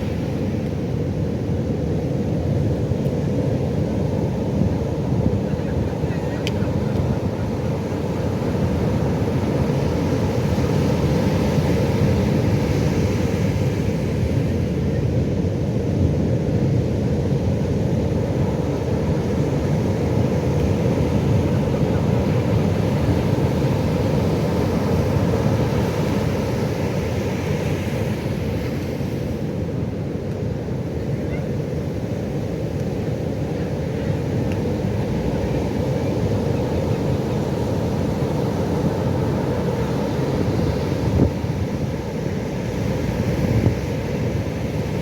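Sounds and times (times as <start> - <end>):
ocean waves breaking: 17.4 - 45.0.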